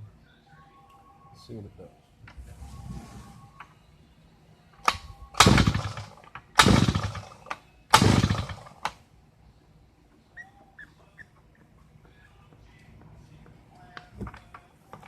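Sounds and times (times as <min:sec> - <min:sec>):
recoil starter pull whirring: 0:04.9 - 0:09.0.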